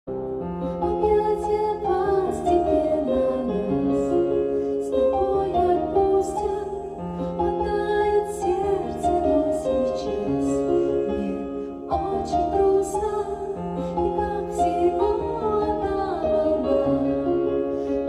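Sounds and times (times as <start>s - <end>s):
piano accompaniment: 0.1s - 18.0s
woman singing slow song: 4.9s - 17.3s.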